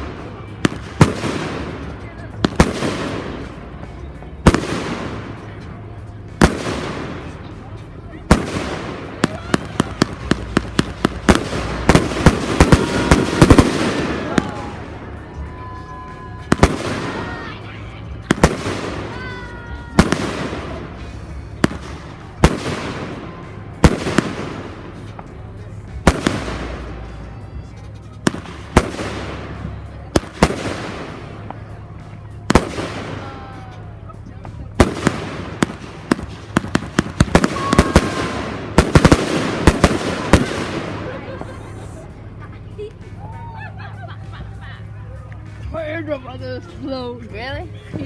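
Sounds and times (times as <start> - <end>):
fireworks bangs: 0.0 - 5.7, 6.3 - 25.4, 26.0 - 31.8, 32.5 - 33.9, 34.5 - 42.2
fireworks crackle and rumble: 0.0 - 48.0
faint firework whistle: 37.2 - 38.6.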